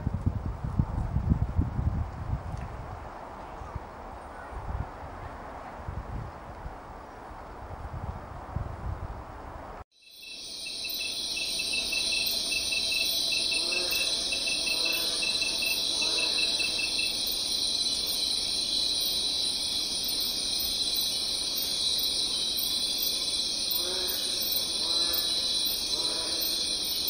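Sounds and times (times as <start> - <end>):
insect pulsed chirping: 10.0 - 27.0
insects buzzing trills: 10.0 - 27.0.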